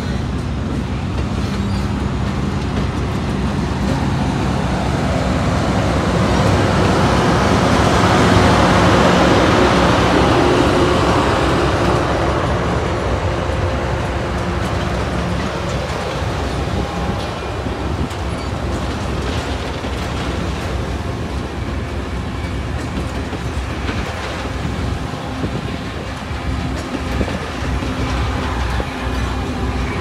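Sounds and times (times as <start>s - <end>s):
train rumbling past: 0.0s - 30.0s.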